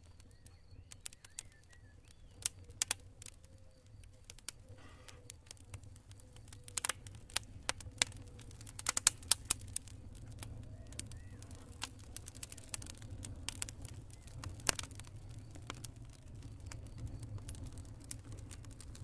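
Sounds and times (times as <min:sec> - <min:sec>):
campfire crackling: 0:00.0 - 0:19.0.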